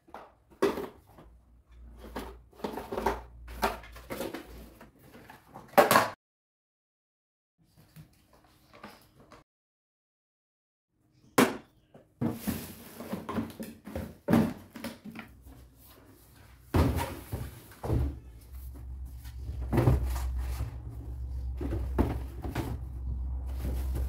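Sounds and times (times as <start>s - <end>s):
objects knocking and clattering: 0.0s - 6.2s, 12.2s - 15.7s, 16.4s - 24.0s.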